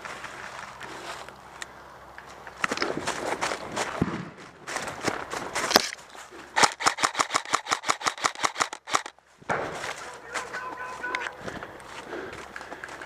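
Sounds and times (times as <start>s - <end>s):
rustling: 2.2s - 13.0s
airsoft rifle automatic fire: 6.6s - 9.1s.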